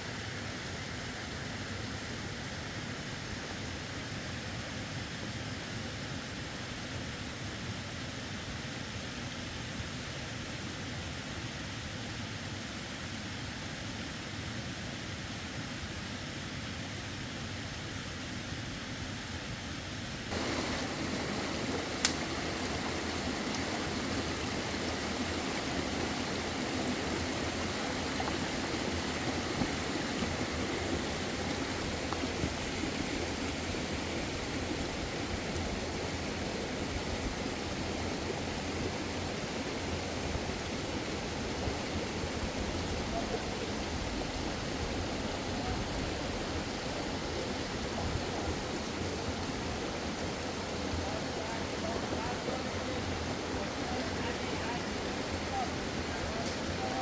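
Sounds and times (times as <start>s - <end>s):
stream water rushing: 20.3s - 57.0s.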